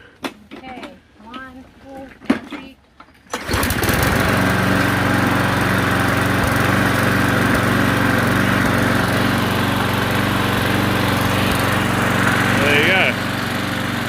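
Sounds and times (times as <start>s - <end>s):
lawn mower engine pull-started: 3.1s - 14.0s.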